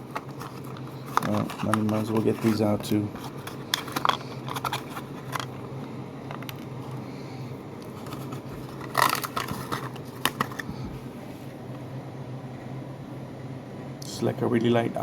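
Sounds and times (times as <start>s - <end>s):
packaging clicks: 0.0s - 7.0s, 7.8s - 10.7s
packaging crackling: 0.0s - 7.0s, 7.8s - 10.8s
steady low hum: 0.0s - 15.0s.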